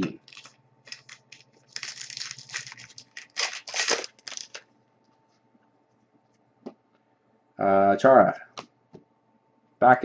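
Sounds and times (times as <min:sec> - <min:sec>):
cards being handled: 0:00.0 - 0:04.6
wrapper crinkling and tearing: 0:00.0 - 0:04.7.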